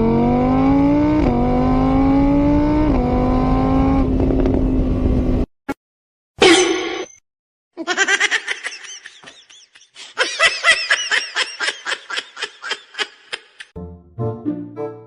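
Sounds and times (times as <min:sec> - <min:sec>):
high-pitched laughter: 0:07.8 - 0:13.7.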